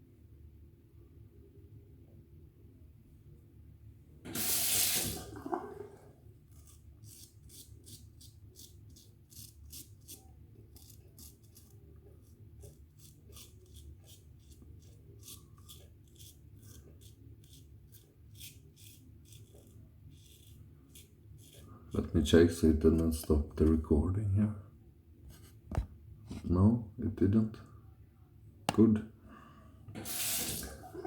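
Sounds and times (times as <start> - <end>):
water tap running: 4.3 - 6.0, 30.0 - 31.0
razor scraping stubble: 6.5 - 23.8.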